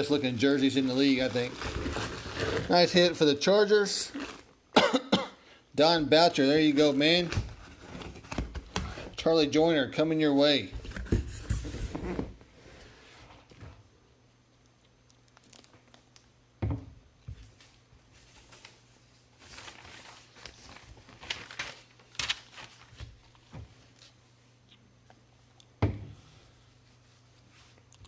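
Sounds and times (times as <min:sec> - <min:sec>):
plastic packaging crinkling: 0:00.0 - 0:03.1, 0:19.4 - 0:24.1.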